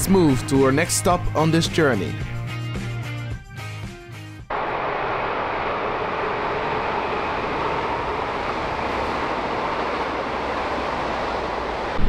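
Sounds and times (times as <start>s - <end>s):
train passing at speed: 4.5s - 12.0s.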